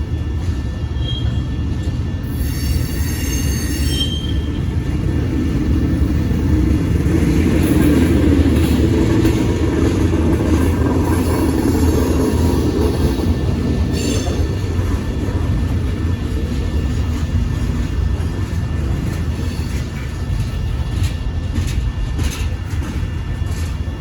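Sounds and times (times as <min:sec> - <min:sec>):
freight train rumbling past: 0:00.0 - 0:24.0
high-pitched wheel squeal: 0:02.3 - 0:04.6.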